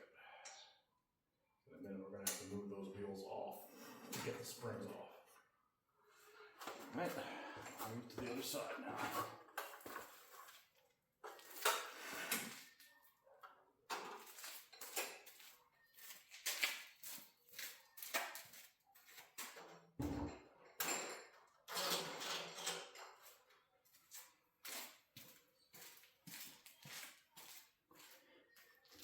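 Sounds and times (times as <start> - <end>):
tools knocking and scraping: 19.4 - 23.4.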